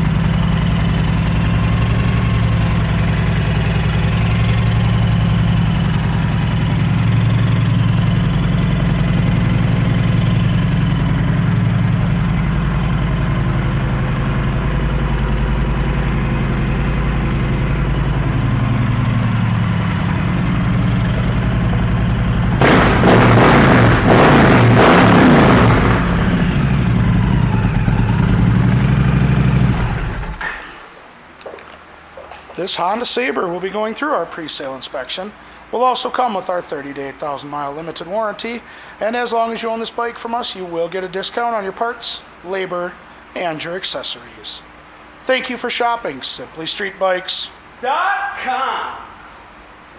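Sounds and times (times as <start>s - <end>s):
motorcycle engine idling: 0.0s - 30.5s.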